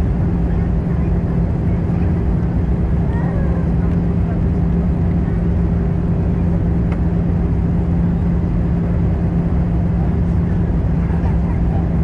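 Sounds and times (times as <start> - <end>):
aircraft cabin engine drone: 0.0 - 12.0.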